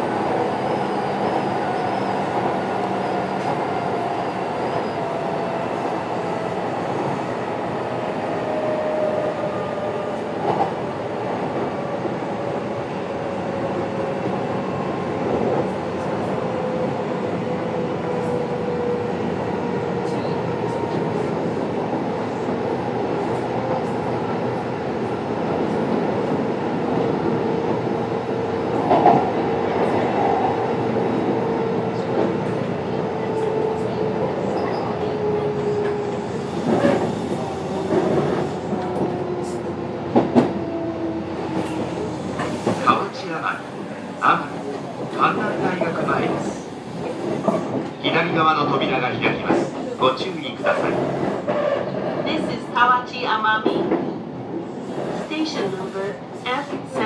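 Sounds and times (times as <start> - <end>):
train wheels rumbling on track: 0.0 - 57.0
train knocks: 35.6 - 42.9.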